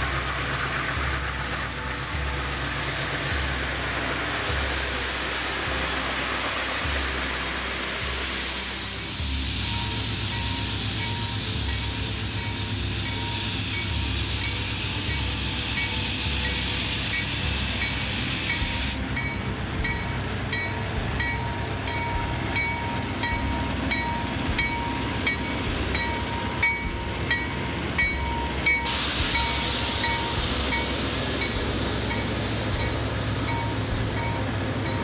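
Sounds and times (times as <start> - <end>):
hissing rush of noise: 0.0 - 35.0
train rumbling by: 0.0 - 35.0.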